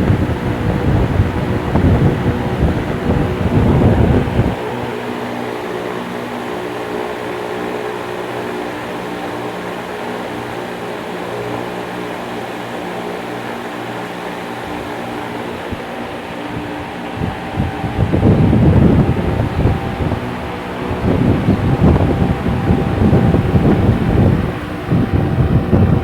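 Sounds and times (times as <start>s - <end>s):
wind buffeting microphone: 0.0s - 7.4s, 12.4s - 26.0s
fan blades whooshing: 0.0s - 26.0s
fan motor hum: 0.0s - 26.0s.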